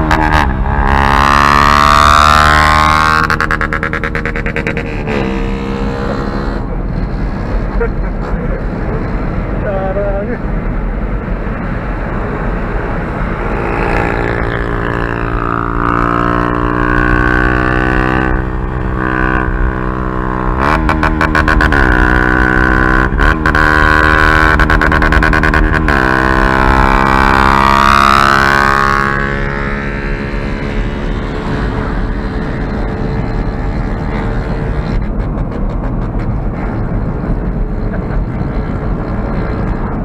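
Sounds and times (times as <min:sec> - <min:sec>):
motorcycle engine revving: 0:00.0 - 0:07.6, 0:12.9 - 0:40.0.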